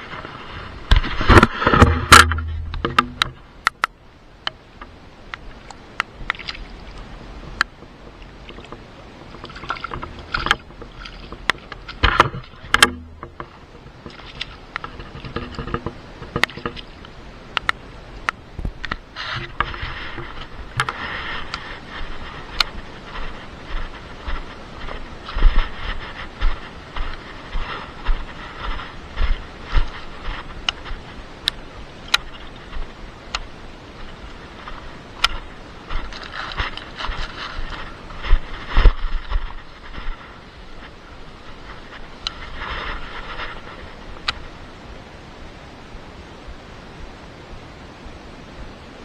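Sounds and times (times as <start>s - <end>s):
water splashing and sloshing: 0.0s - 45.2s
sharp clicks and knocks: 0.9s - 5.4s, 8.5s - 16.9s.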